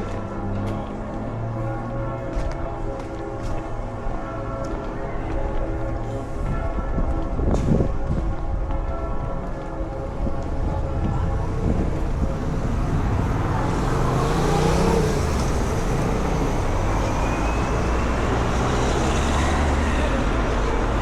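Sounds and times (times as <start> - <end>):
steady traffic rumble: 0.0 - 21.0
approaching vehicle engine and tyres: 11.3 - 21.0.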